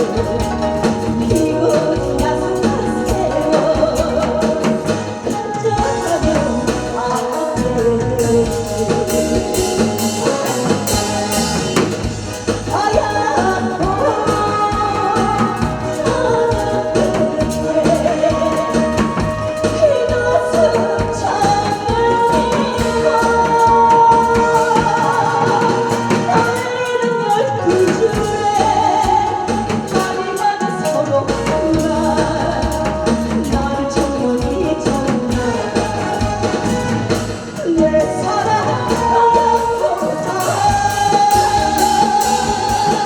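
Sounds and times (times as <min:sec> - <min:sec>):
backing track with steady beat: 0:00.0 - 0:43.0
person singing: 0:00.0 - 0:43.0.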